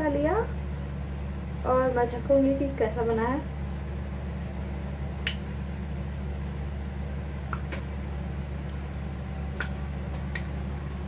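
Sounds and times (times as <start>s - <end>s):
steady low hum: 0.0s - 11.0s
soft mouth smacks: 5.2s - 5.5s, 7.5s - 7.8s, 9.6s - 10.5s.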